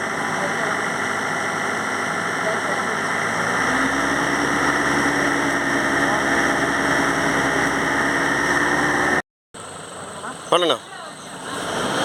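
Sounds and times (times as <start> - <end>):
car engine revving: 0.0 - 9.2, 11.3 - 12.0.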